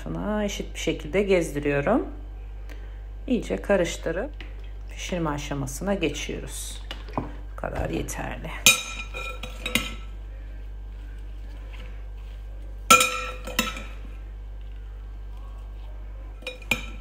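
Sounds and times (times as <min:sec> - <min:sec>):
metal spoon clinking on glass bowl: 0:12.9 - 0:14.0, 0:16.4 - 0:17.0.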